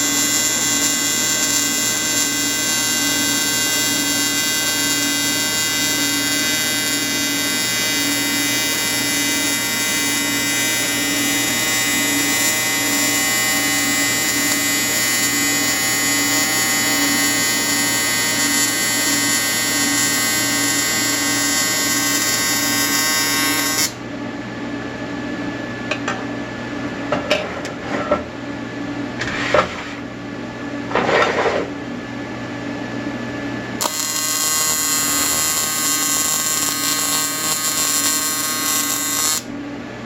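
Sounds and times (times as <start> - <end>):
welding arc buzzing: 0.0 - 24.0, 33.8 - 39.6.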